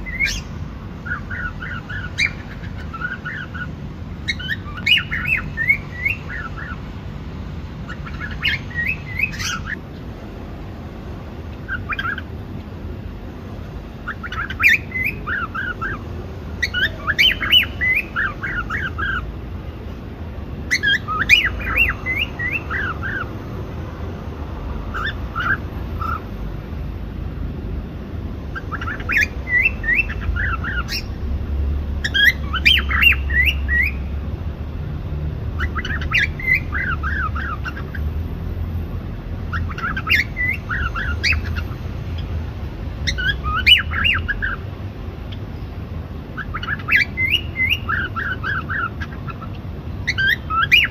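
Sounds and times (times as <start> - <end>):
cockatiel chirping and whistling: 0.0 - 6.8, 7.9 - 9.8, 11.6 - 12.3, 14.0 - 16.0, 16.6 - 19.2, 20.7 - 23.3, 24.9 - 26.2, 28.5 - 31.2, 32.0 - 34.1, 35.6 - 38.0, 39.5 - 41.7, 43.0 - 44.6, 46.4 - 50.9.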